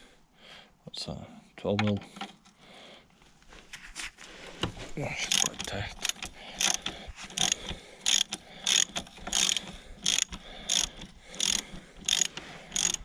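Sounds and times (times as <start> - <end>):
ratchet wrench clicking: 5.3 - 13.0.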